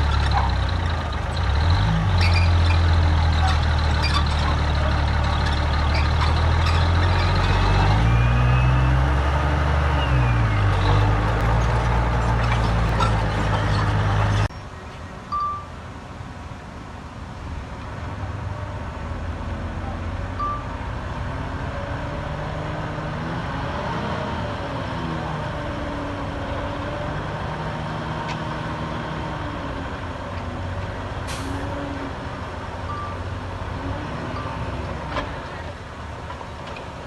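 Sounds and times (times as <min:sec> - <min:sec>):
heavy diesel engine running: 0:00.0 - 0:14.5
high beeps: 0:20.4 - 0:20.7, 0:32.9 - 0:33.2.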